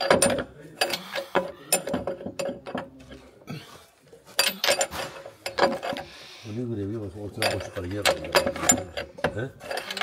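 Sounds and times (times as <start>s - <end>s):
hand tools clicking and clanking: 0.0s - 3.3s, 4.3s - 6.1s, 7.2s - 10.0s.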